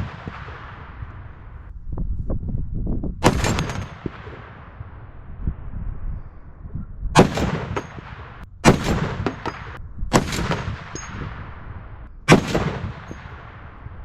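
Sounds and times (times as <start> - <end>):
rifle shots with echo: 0.0 - 1.7, 3.2 - 5.3, 7.2 - 14.0.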